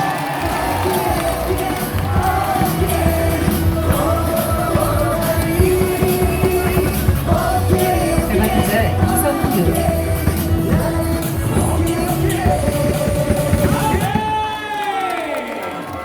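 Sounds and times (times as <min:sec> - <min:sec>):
loud music with singing over speakers: 0:00.0 - 0:14.6.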